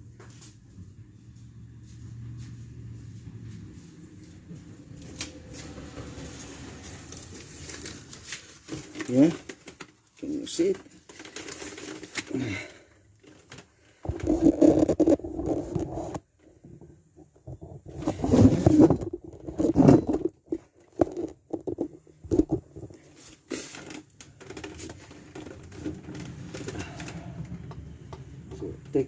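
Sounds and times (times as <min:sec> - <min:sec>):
metal scraping and rattling: 0:17.5 - 0:27.7.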